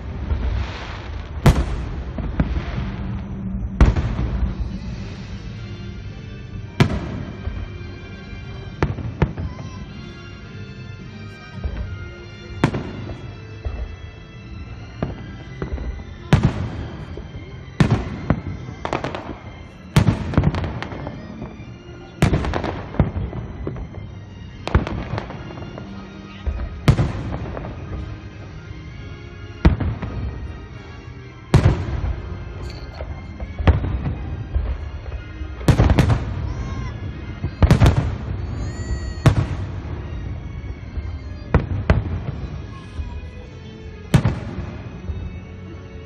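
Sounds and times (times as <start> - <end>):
fireworks bursting: 0.0 - 10.2, 11.5 - 45.6
fireworks crackling: 0.0 - 46.0
music: 0.0 - 46.0.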